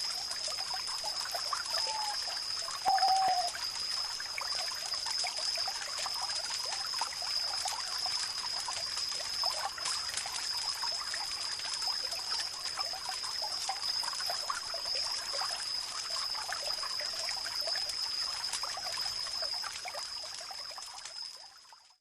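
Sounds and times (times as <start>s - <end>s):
stream trickling and bubbling: 0.0s - 22.0s
steady high-pitched tone: 2.8s - 3.6s.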